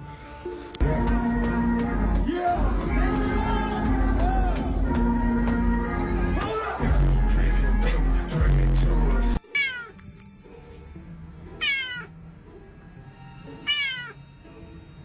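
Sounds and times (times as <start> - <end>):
music with heavy bass beat: 0.8 - 9.4
cat meowing: 9.4 - 10.0, 11.6 - 12.1, 13.6 - 14.2.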